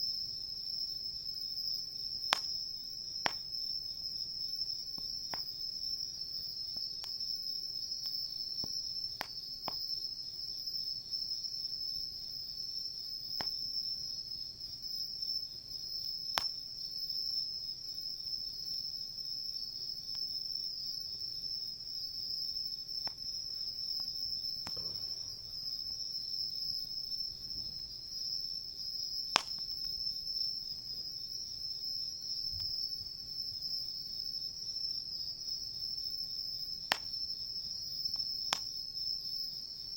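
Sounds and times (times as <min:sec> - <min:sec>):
crickets chirping: 0:00.0 - 0:39.9
campfire crackling and popping: 0:22.9 - 0:27.9, 0:29.1 - 0:30.6, 0:36.9 - 0:37.3, 0:38.1 - 0:38.8.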